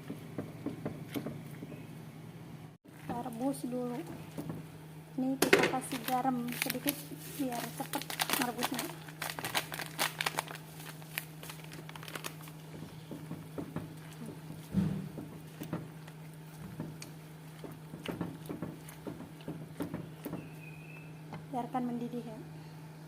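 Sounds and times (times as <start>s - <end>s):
crinkling and clicking of kitchen handling: 5.4s - 20.5s
loud knock: 14.7s - 15.8s.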